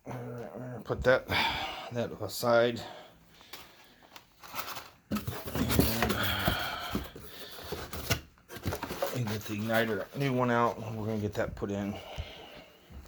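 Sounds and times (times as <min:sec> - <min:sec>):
rustling and clatter of parts: 0:03.5 - 0:11.4.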